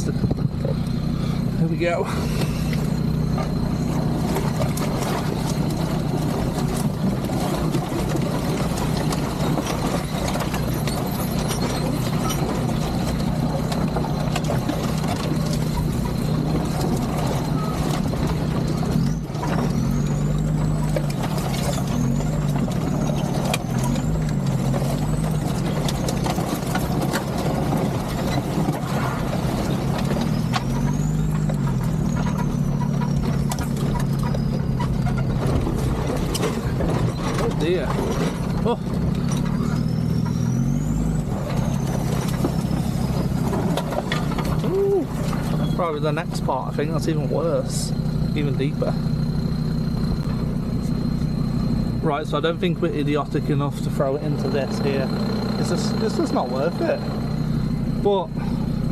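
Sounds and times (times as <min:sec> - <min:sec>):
diesel engine labouring: 0:00.0 - 0:58.9
knocks and rattles: 0:02.4 - 0:49.3.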